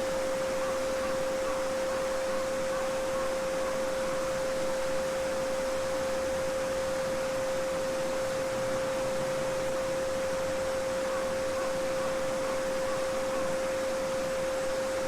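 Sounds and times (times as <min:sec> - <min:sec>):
steady sine tone: 0:00.0 - 0:15.0.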